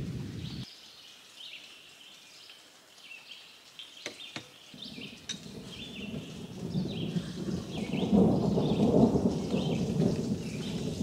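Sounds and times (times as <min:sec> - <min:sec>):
songbird chirping: 0:00.1 - 0:11.0
thunder rumble: 0:04.8 - 0:11.0.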